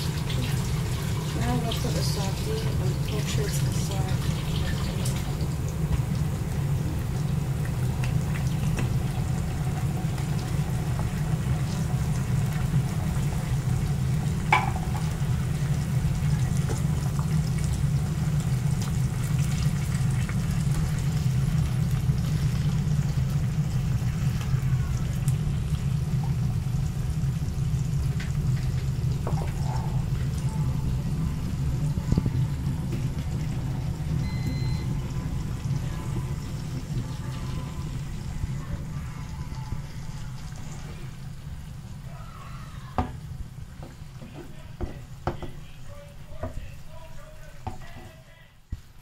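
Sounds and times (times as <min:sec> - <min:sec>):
onions sizzling in a pan: 0:00.0 - 0:48.2
utensil knock: 0:14.5 - 0:15.0, 0:43.8 - 0:45.6.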